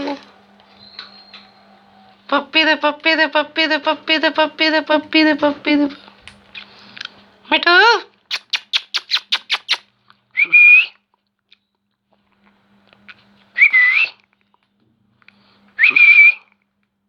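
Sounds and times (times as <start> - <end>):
shrill whistled calls: 0.7 - 2.2, 8.3 - 9.8, 15.8 - 16.5
quick clicks: 8.3 - 9.8.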